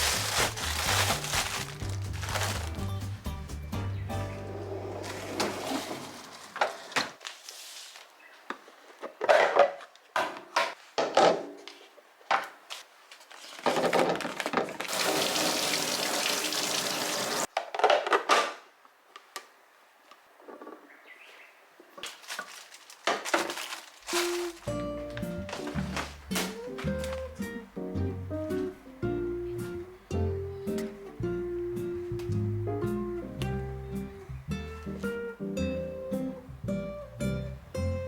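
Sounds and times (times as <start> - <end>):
food containers knocking and clinking: 25.5 - 26.6.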